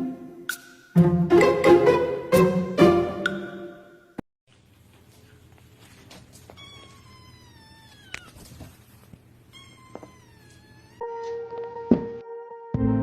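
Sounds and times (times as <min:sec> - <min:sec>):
cat meowing: 0:06.5 - 0:08.7, 0:09.4 - 0:11.0.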